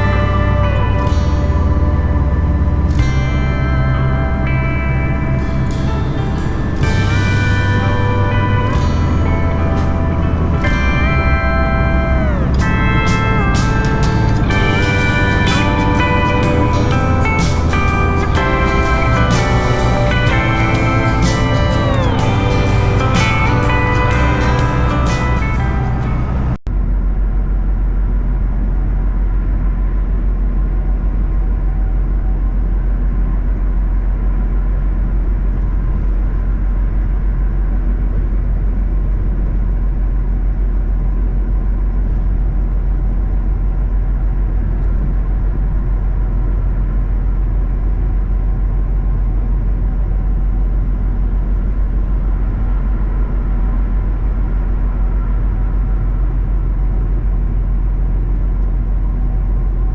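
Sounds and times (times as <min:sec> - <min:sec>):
road noise: 0:00.0 - 0:26.6
truck diesel engine drone: 0:00.0 - 0:26.6.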